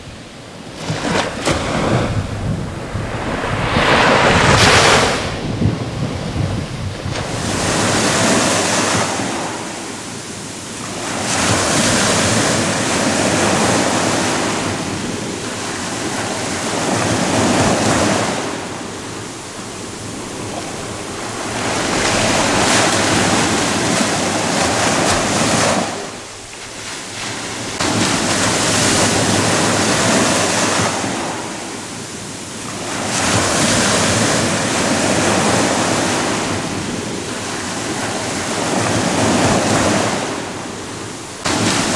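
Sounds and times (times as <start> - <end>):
ocean waves breaking on shore: 0.0 - 41.9.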